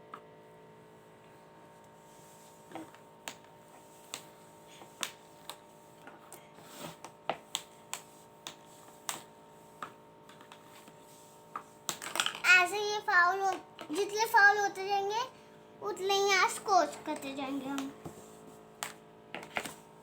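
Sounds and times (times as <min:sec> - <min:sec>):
air fan hum: 0:00.0 - 0:20.0
air hockey puck clicks: 0:06.9 - 0:10.7, 0:18.8 - 0:19.8.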